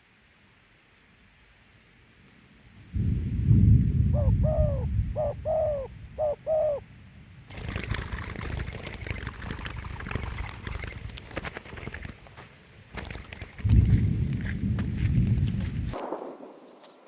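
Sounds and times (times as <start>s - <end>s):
low rumble: 3.0s - 6.2s, 13.6s - 16.0s
dove cooing: 4.0s - 6.8s
crackling rustle: 7.5s - 17.0s.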